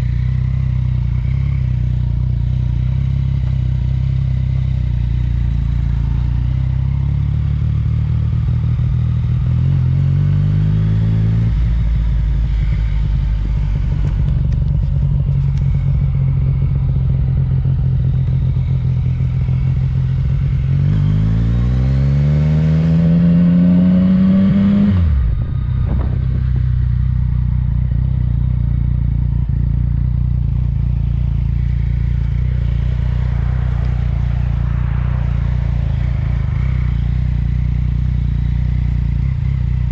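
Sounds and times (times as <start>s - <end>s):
motorcycle engine idling and revving: 0.0s - 39.9s
exhaust sharp crack: 31.1s - 39.0s.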